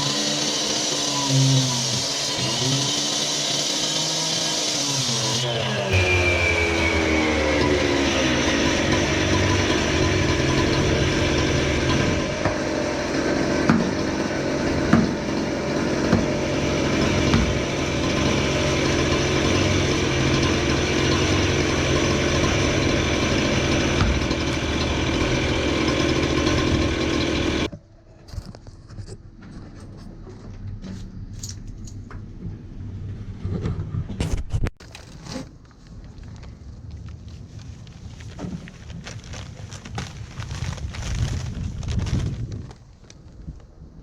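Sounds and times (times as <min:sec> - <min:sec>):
gas engine running: 0:02.0 - 0:27.7
scraping: 0:33.4 - 0:43.6.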